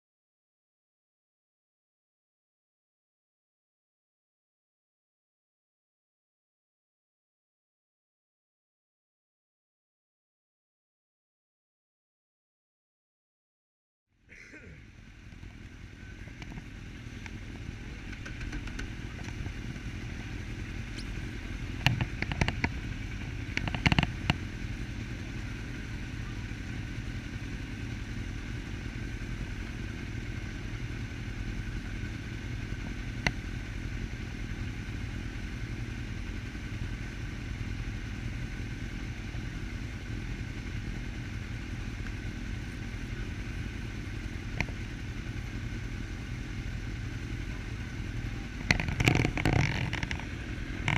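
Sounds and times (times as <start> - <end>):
motorcycle engine running: 14.3 - 50.9
sharp clattering knocks: 48.6 - 50.9.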